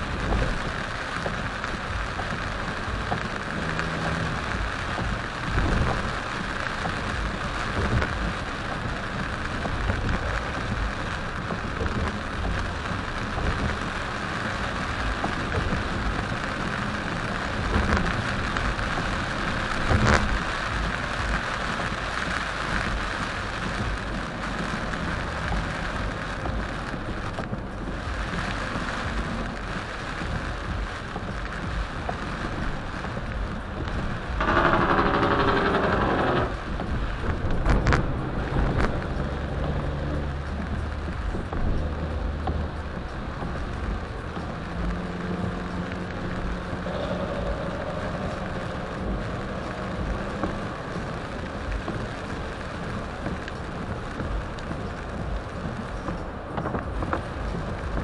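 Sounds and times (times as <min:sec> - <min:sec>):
heavy rain on car: 0:00.0 - 0:58.0
low road rumble: 0:00.0 - 0:58.0.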